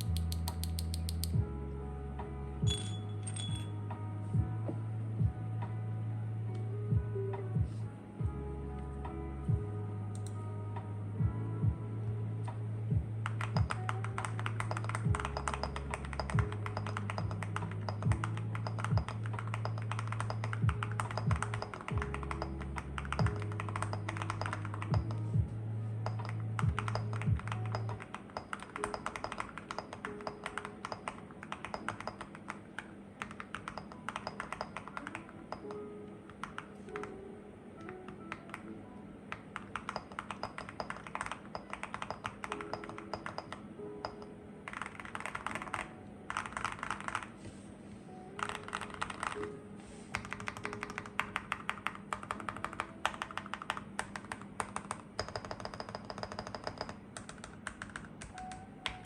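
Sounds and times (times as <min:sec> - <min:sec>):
mechanical keyboard typing: 0:00.0 - 0:01.4, 0:13.2 - 0:25.4, 0:26.0 - 0:37.2, 0:37.8 - 0:38.7, 0:39.3 - 0:47.4, 0:48.3 - 0:59.0
background music: 0:00.0 - 0:59.0.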